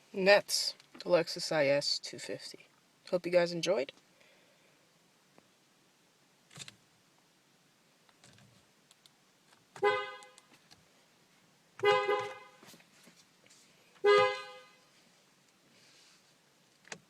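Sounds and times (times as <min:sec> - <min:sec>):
car horn honks: 0:09.8 - 0:10.4, 0:11.8 - 0:12.7, 0:14.0 - 0:14.8.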